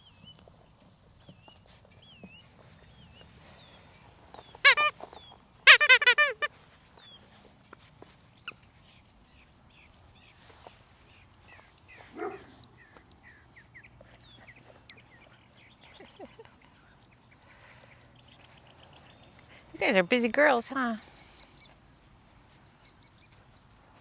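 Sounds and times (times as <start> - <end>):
faint birds chirping: 0.0 - 24.0
puppy yelping: 4.7 - 4.9, 5.7 - 6.5.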